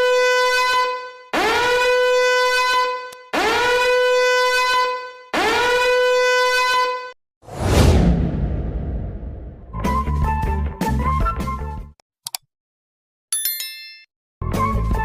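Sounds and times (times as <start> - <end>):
loud crash: 7.5 - 10.0.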